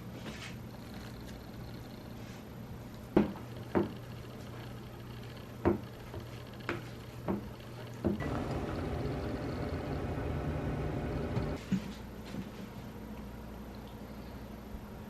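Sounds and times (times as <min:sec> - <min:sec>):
low hum: 0:08.2 - 0:11.6.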